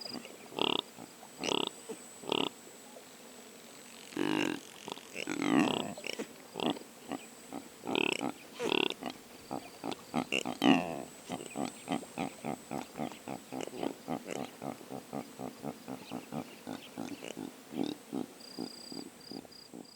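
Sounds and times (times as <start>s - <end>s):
impala calling: 4.0s - 19.9s.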